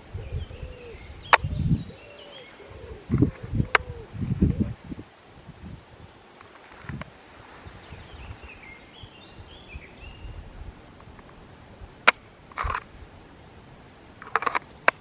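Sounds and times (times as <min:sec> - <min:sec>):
faint bird chirps: 0:00.1 - 0:04.8.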